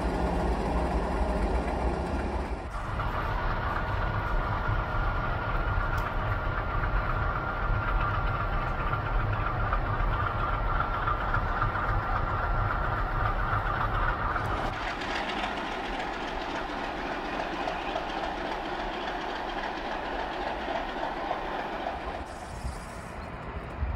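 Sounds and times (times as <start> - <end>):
diesel locomotive engines rumbling: 0.0 - 23.9.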